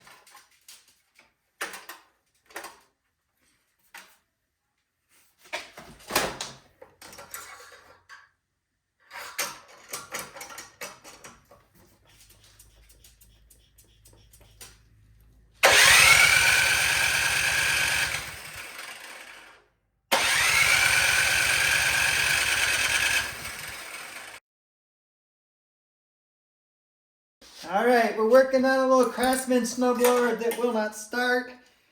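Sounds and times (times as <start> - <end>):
snowblower engine whining: 14.1 - 24.4.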